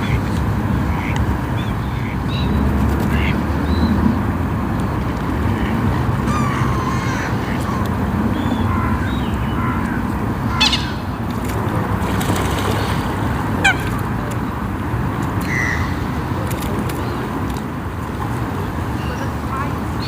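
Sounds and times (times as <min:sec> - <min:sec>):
waterfowl calling: 0:05.5 - 0:14.5, 0:15.4 - 0:17.3.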